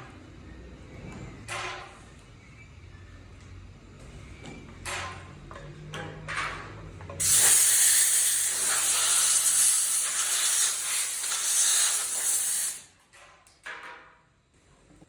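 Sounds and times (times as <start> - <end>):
air hissing through nozzle: 7.2 - 12.8.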